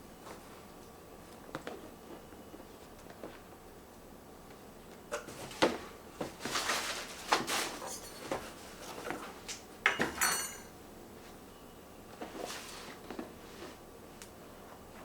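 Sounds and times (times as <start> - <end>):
packaging rustling: 5.5 - 8.6.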